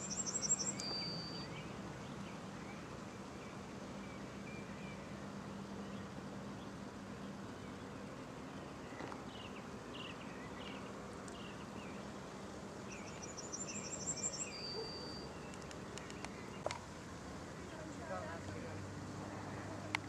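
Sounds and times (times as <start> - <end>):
bird downward chirps: 0.0 - 1.5
bird high rapid trill: 0.0 - 1.5
outdoor background noise: 0.0 - 20.0.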